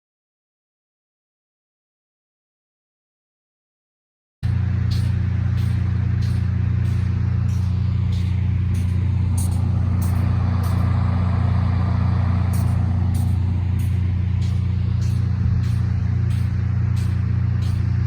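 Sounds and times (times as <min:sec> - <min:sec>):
diesel locomotive droning: 0:04.4 - 0:18.0.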